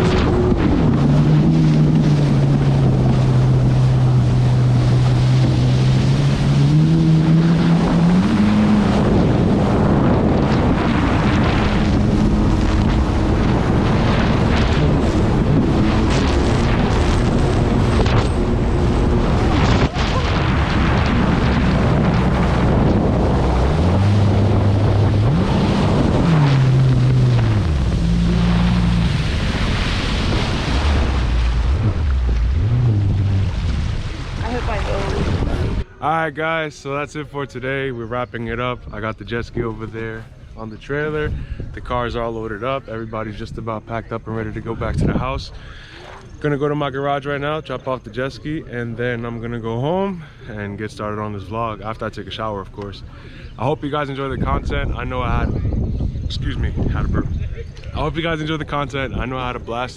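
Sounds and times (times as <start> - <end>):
wind buffeting microphone: 0.0 - 36.0, 37.5 - 46.4, 48.5 - 59.9
jet ski engine revving: 0.0 - 36.2.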